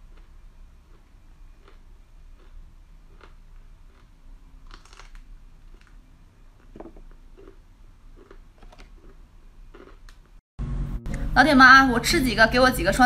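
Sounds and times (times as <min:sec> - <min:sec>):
crisp chewing crunches: 0:00.0 - 0:10.3.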